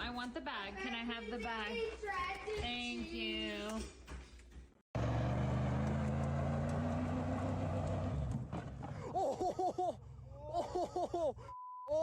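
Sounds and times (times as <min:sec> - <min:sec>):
engine running: 0:05.0 - 0:08.9.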